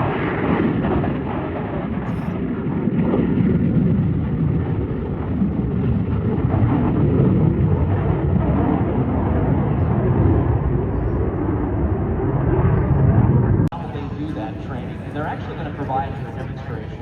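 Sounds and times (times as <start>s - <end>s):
aircraft engine rumble: 0.0s - 17.0s.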